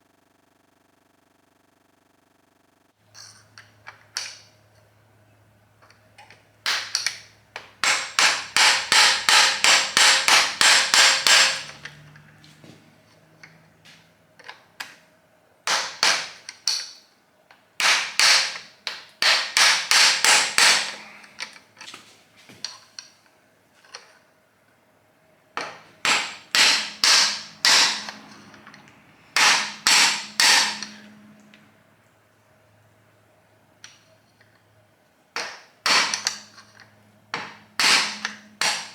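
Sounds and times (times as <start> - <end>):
hammer striking metal: 7.8 - 11.8, 15.7 - 16.4, 17.8 - 21.2, 25.6 - 31.3, 35.4 - 36.5, 37.4 - 38.9.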